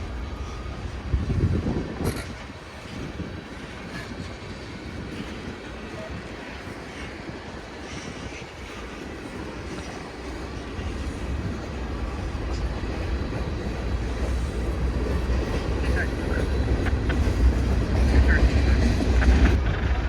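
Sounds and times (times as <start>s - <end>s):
freight train rumble: 0.0s - 20.0s.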